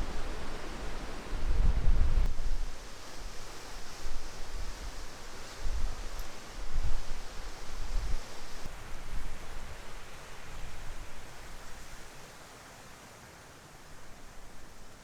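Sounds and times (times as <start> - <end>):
gusting wind buffeting microphone: 0.0 - 2.8.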